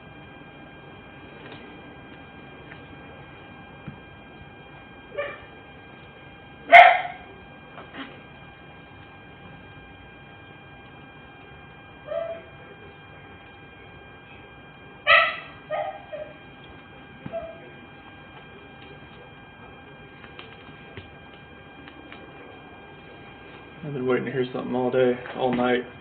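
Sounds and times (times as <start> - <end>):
steady electrical hum: 0.0 - 26.0
dog barking: 5.2 - 5.5, 6.7 - 7.3, 12.1 - 12.5, 15.1 - 16.4.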